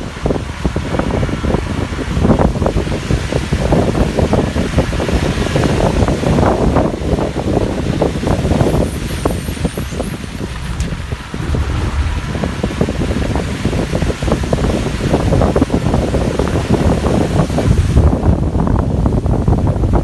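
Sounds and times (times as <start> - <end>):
bus engine and road rumble: 0.0 - 20.0
wind buffeting microphone: 0.0 - 20.0
knocks and rattles: 8.4 - 14.5.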